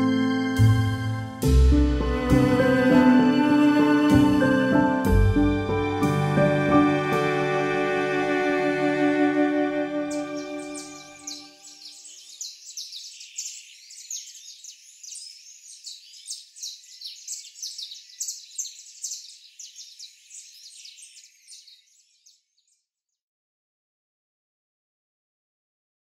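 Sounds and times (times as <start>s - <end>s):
music: 0.0s - 11.7s
birds chirping and singing: 0.0s - 23.0s.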